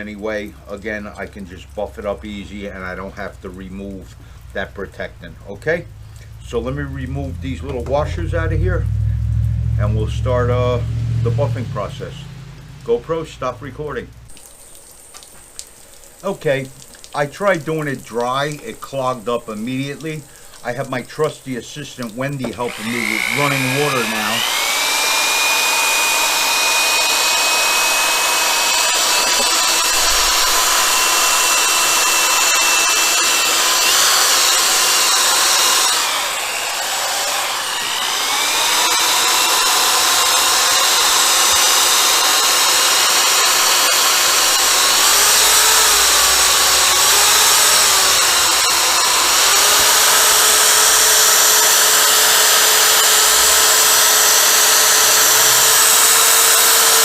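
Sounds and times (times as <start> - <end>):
power drill motor whining: 22.4 - 57.0.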